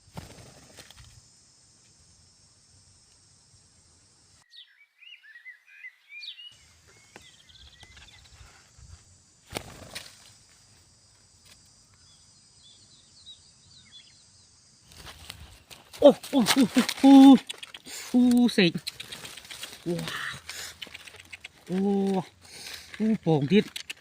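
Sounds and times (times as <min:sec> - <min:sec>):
bird chirps: 0:04.4 - 0:08.6, 0:11.8 - 0:14.6
handling rustle: 0:14.9 - 0:24.0.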